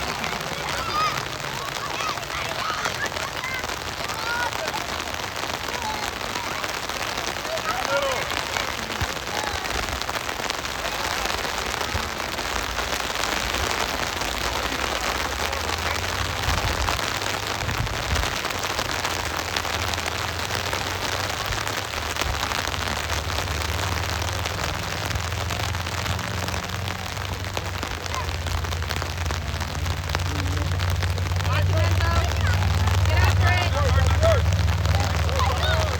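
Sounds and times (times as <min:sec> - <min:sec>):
heavy rain hissing: 0:00.0 - 0:35.9.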